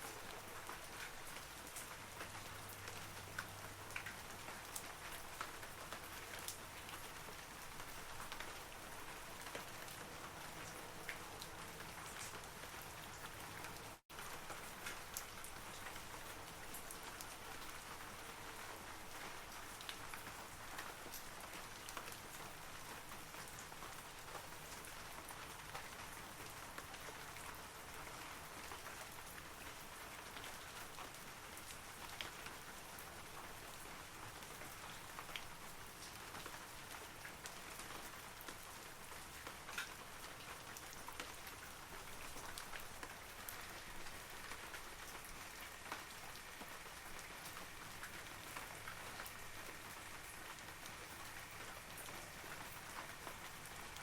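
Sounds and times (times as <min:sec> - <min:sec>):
rain falling on trees: 0:00.0 - 0:54.0.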